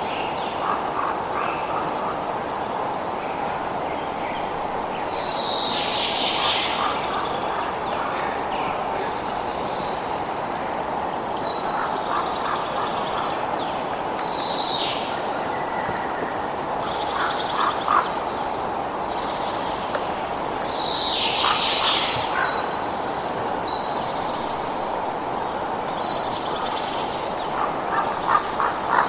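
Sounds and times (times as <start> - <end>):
birds calling: 4.1 - 10.1, 20.3 - 25.0, 25.6 - 29.0.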